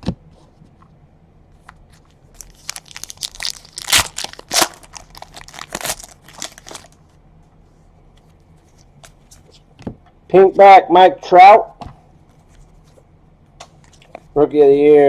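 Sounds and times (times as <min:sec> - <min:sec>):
plastic wrapper crinkling: 0:01.9 - 0:07.0.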